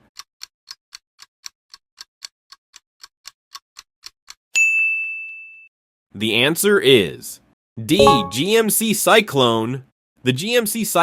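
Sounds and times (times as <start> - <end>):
bell ding: 8.0 - 8.5.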